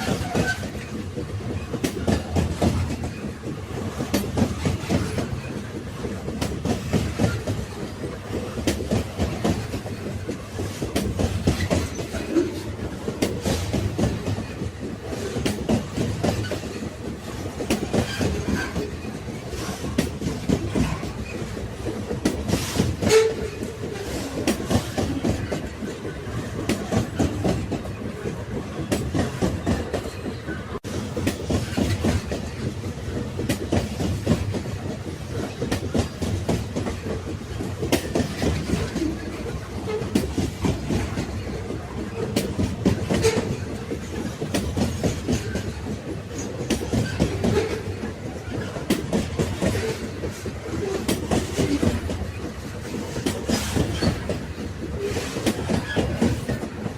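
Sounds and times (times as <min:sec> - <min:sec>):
train rumble: 0:00.0 - 0:56.9
train wheels clickety-clack: 0:00.0 - 0:56.9.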